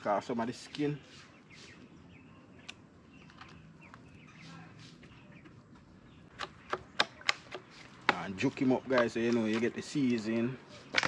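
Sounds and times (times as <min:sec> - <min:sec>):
faint bird chirps: 0:00.1 - 0:07.9.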